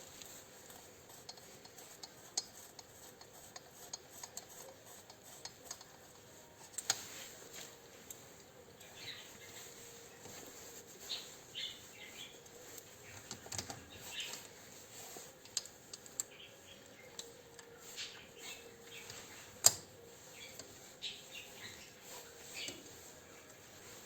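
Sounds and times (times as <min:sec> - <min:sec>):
light clicks and taps: 0:12.4 - 0:14.6, 0:15.4 - 0:18.1, 0:18.9 - 0:19.9.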